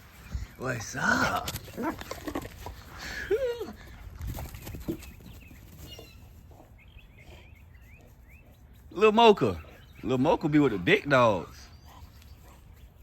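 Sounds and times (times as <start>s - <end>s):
faint bird chirps: 4.8s - 10.9s.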